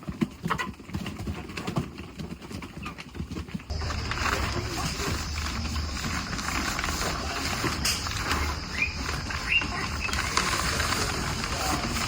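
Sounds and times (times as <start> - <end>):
steady rustling: 0.0 - 12.0
chicks chirping: 3.7 - 11.8.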